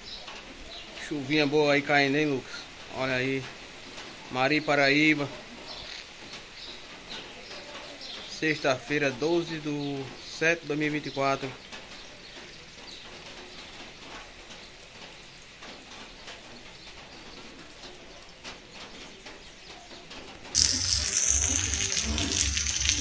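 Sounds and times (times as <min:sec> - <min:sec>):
heavy rain hiss: 0:20.5 - 0:23.0.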